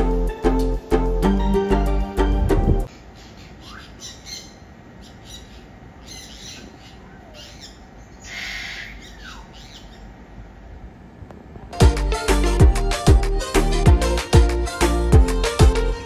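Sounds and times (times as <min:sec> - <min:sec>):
birds calling: 0:02.8 - 0:10.6
low steady background noise: 0:02.8 - 0:11.8
harsh bird call: 0:02.9 - 0:10.1
high bird chirps: 0:02.9 - 0:10.1.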